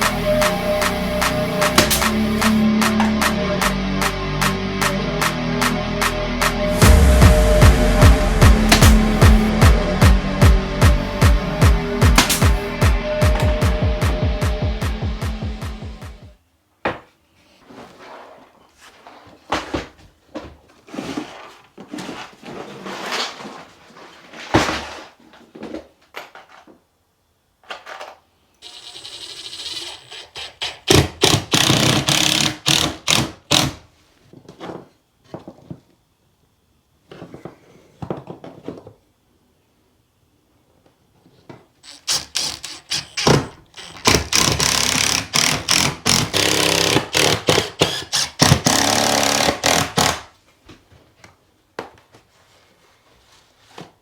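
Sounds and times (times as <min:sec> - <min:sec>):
fast runs of strikes: 0:00.0 - 0:16.4
rasping: 0:41.8 - 0:45.9
wood and tools knocking: 0:41.8 - 0:50.2.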